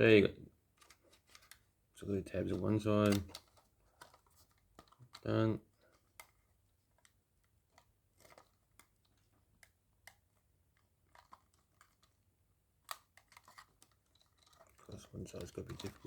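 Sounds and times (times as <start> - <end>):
hard plastic clicks and taps: 2.5 - 4.2.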